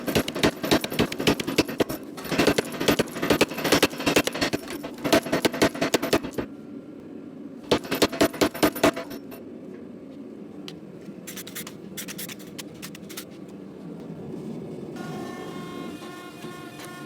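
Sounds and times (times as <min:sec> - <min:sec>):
rushing scraping noise: 0:00.0 - 0:06.5
scattered clicks: 0:00.0 - 0:06.5, 0:07.7 - 0:09.4.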